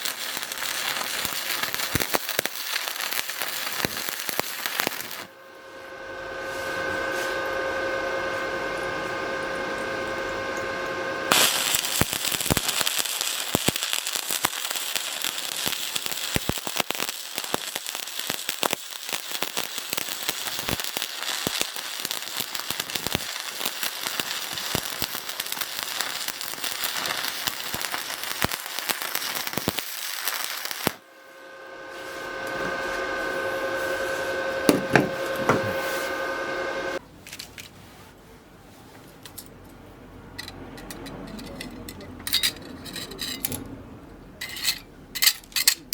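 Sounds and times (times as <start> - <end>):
welding arc crackling: 0.0 - 5.4, 11.3 - 37.0
steady hum: 0.0 - 37.0
knocks: 34.7 - 35.8.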